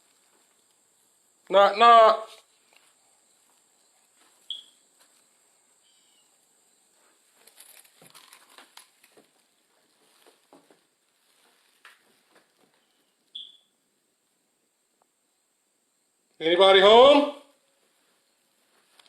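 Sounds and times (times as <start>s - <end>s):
footsteps crunching on debris: 2.5s - 5.3s, 7.2s - 13.0s
short high squeaks: 4.4s - 4.8s, 13.3s - 13.7s.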